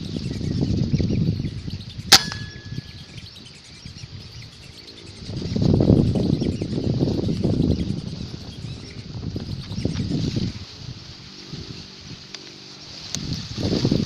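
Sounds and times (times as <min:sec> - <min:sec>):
gunshot with metallic ring: 0:02.1 - 0:03.1.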